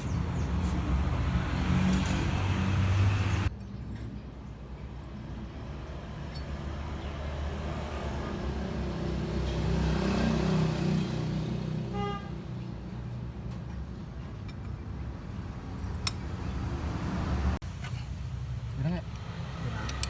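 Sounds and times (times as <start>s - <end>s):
vehicle engine passing: 0.0s - 3.5s, 5.2s - 12.0s.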